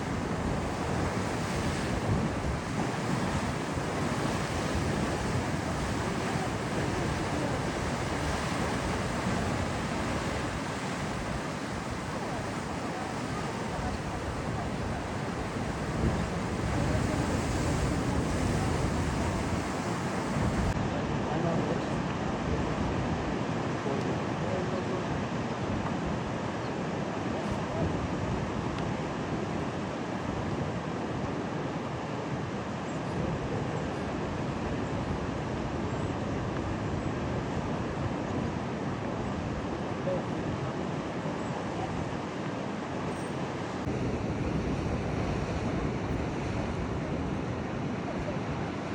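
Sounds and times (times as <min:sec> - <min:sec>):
wind buffeting microphone: 0:00.0 - 0:24.0, 0:41.2 - 0:48.7
rough surf breaking: 0:00.0 - 0:26.4, 0:39.4 - 0:48.9.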